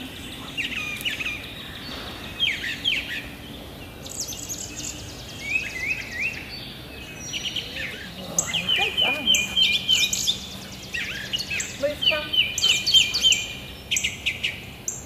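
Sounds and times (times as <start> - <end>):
songbirds chirping and singing: 0.0 - 15.0
rapid high bird trill: 7.3 - 15.0.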